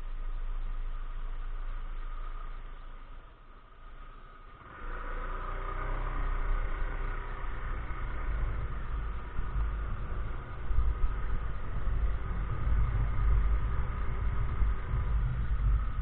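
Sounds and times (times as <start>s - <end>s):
scooter engine running: 4.4s - 16.0s
wind noise: 7.4s - 16.0s.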